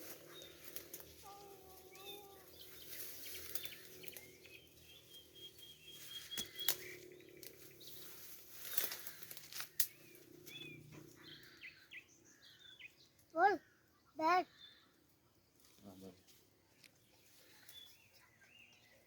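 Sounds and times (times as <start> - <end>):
birds chirping faintly: 0.0 - 19.0
sharp clicks and rustles: 8.6 - 10.5.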